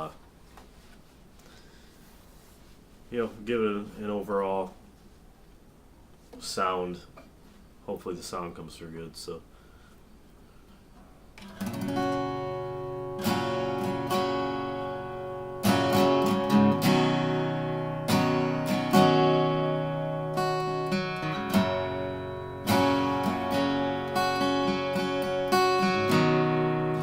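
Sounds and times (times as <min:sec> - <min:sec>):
acoustic guitar strummed chords: 0:11.4 - 0:27.0.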